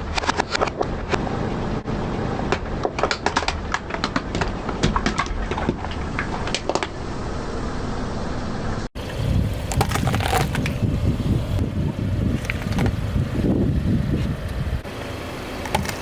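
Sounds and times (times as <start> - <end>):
objects cracking under car tyre: 0.0 - 1.3, 2.5 - 7.0, 9.4 - 11.0, 12.2 - 13.2
low rumble: 0.7 - 14.8.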